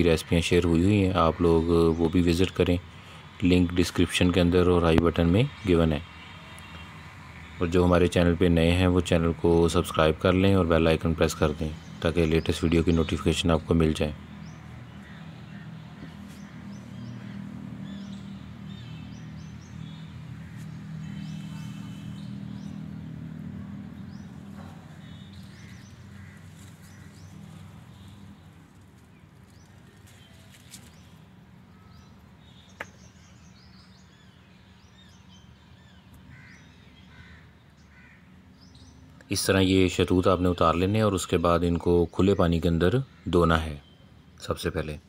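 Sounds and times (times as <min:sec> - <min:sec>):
small birds chirping: 0:00.0 - 0:45.0
steady low hum: 0:06.4 - 0:32.0.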